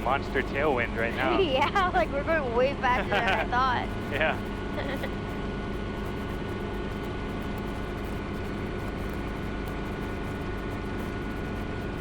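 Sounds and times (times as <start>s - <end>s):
helicopter engine and rotors drone: 0.0s - 12.0s
thin steady tone: 0.0s - 12.0s.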